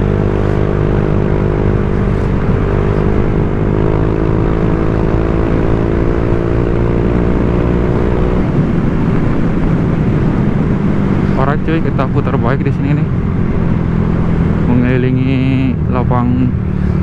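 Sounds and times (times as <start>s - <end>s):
scooter engine running: 0.0s - 9.9s
road and wind rumble: 0.0s - 17.0s.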